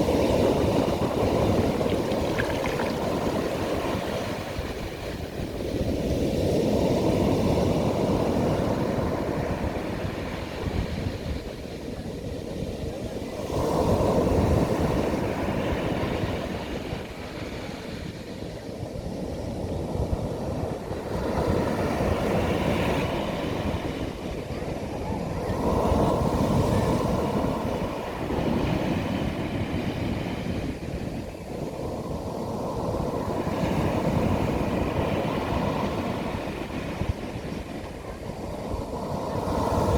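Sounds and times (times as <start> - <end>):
sea waves breaking on beach: 0.0 - 11.6.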